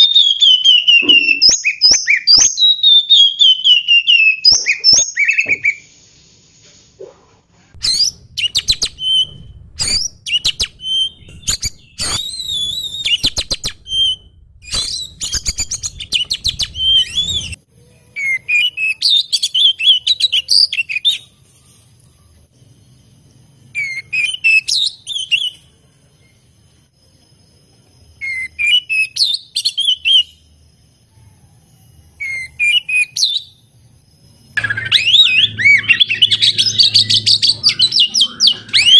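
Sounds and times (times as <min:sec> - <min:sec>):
bird singing whistled phrases: 0:00.0 - 0:05.9, 0:07.8 - 0:17.6, 0:18.2 - 0:21.3, 0:23.8 - 0:25.7, 0:28.2 - 0:30.4, 0:32.2 - 0:33.6, 0:34.6 - 0:38.9.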